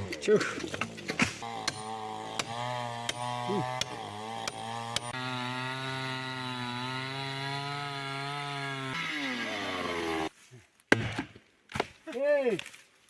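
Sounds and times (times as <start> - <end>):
chainsaw cutting wood: 0.7 - 10.3.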